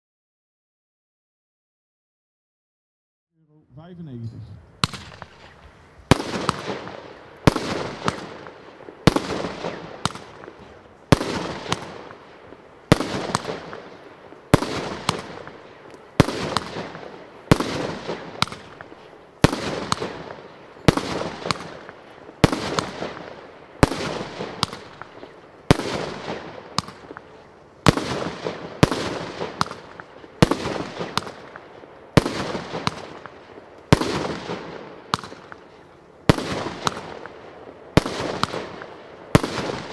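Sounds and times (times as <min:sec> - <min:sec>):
small firework pops: 0:04.8 - 0:37.4
firework cake bangs: 0:06.1 - 0:12.2.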